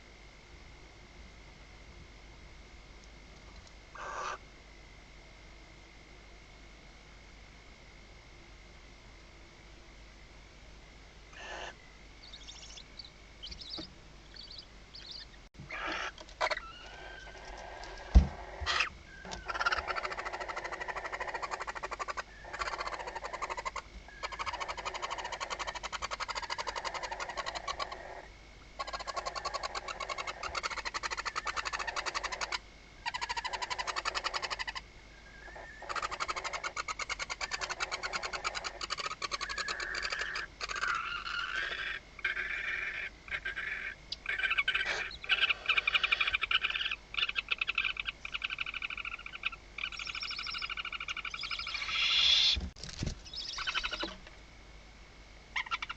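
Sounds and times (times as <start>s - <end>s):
owl nestlings hissing calls: 4.0s - 4.4s, 11.3s - 54.2s, 55.6s - 55.9s
thump: 18.1s - 18.4s.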